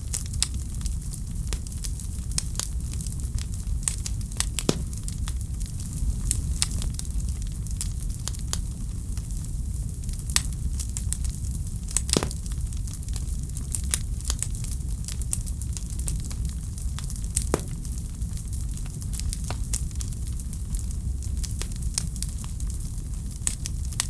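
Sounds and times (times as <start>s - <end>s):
fireplace fire crackling: 0.0s - 24.0s
fire snapping: 2.3s - 6.9s, 10.3s - 20.8s.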